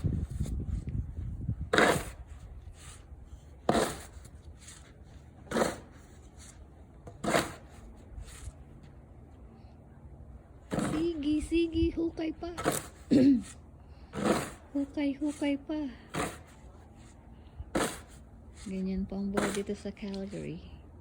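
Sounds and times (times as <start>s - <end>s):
snow shovel scraping snow: 1.7s - 8.6s, 12.5s - 20.6s.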